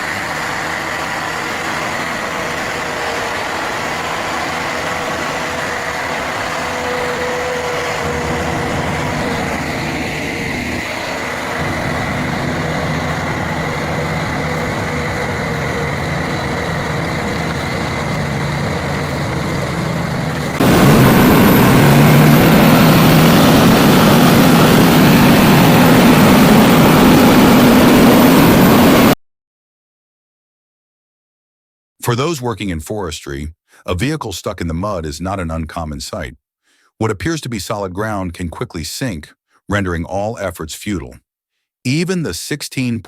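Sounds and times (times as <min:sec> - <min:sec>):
heavy vehicle engine running: 0:00.0 - 0:29.2.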